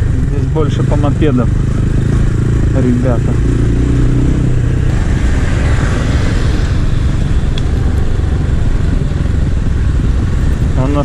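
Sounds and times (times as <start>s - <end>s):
motorcycle engine rumble: 0.0s - 11.0s
wind rushing over microphone: 0.0s - 11.0s.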